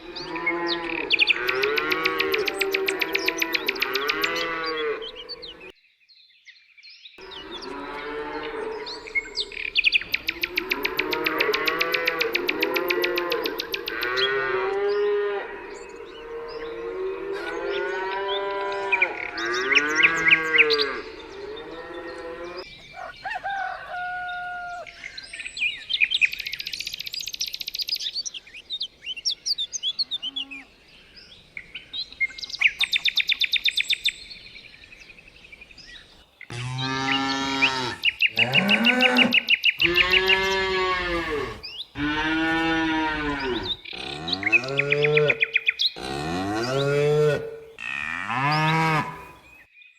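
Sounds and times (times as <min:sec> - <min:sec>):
birds chirping and trilling: 0:00.0 - 0:49.9
cattle mooing: 0:00.2 - 0:05.4, 0:36.5 - 0:49.4.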